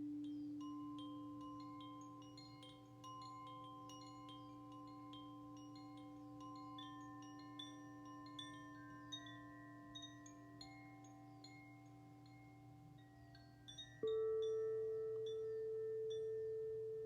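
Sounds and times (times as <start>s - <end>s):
wind chimes tinkling: 0.0s - 17.0s
drone of ringing tones: 14.0s - 17.0s.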